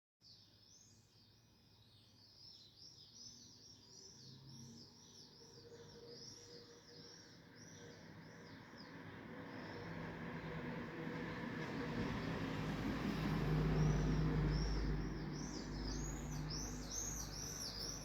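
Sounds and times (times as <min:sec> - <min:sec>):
small bird chirping: 0:13.8 - 0:18.0.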